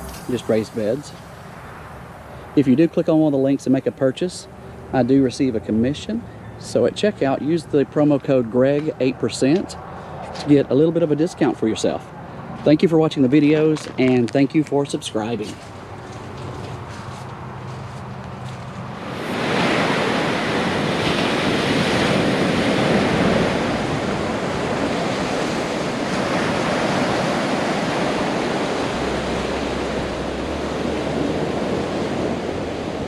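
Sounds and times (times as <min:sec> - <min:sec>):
steady rushing noise: 0:00.0 - 0:04.0, 0:14.9 - 0:33.0.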